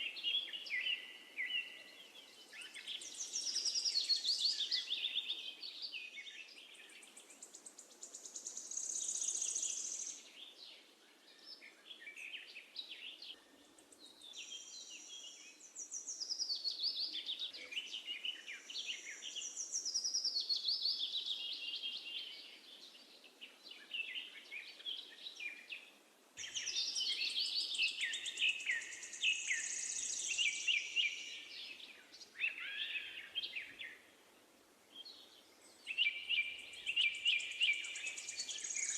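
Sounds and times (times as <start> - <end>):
faint background hiss: 0.0 - 38.9
songbirds singing: 0.0 - 38.9.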